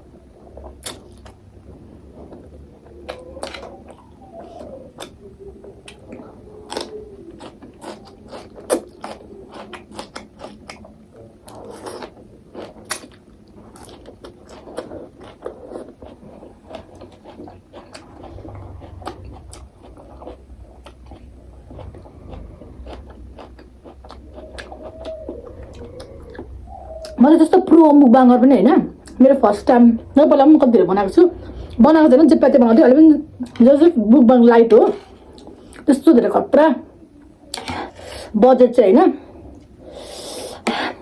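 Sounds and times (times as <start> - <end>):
chewing noodles: 2.2 - 27.2.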